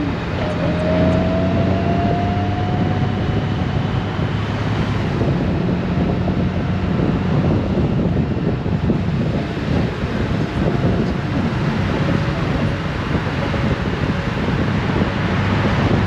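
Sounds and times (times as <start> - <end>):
faint rising whine: 0.0 - 7.3
motorcycle engine hum: 0.0 - 16.0
wind noise on microphone: 0.0 - 16.0.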